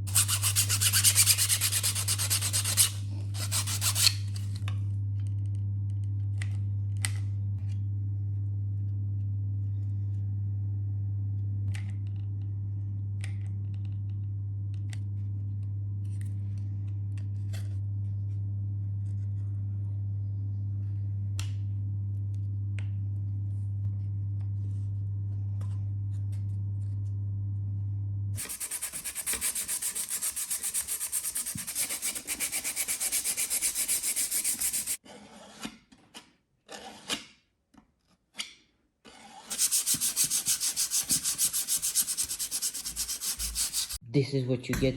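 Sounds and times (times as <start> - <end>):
sandpaper rubbing on plastic: 0.0 - 4.6, 28.4 - 35.0, 39.5 - 44.0
low electrical hum: 0.0 - 35.0, 39.6 - 44.9.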